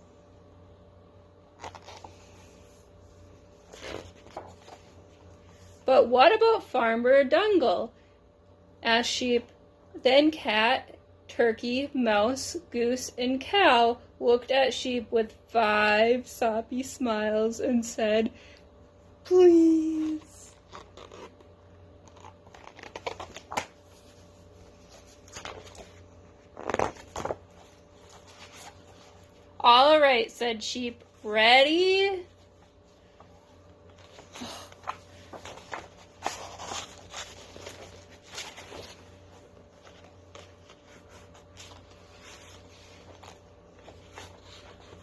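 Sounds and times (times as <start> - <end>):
book pages rustling and turning: 1.5 - 5.8, 19.9 - 29.6, 32.4 - 45.0.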